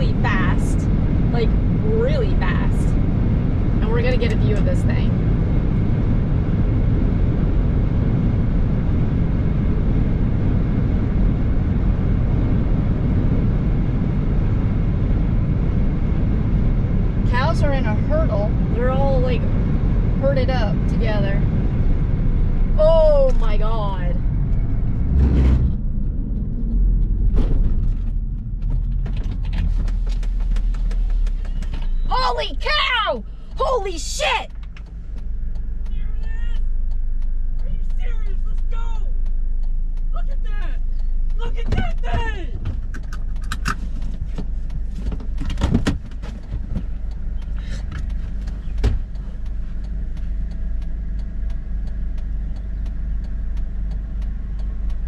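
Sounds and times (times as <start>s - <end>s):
car road rumble: 0.0s - 55.0s
small clicks and creaks: 34.5s - 40.1s, 40.8s - 55.0s.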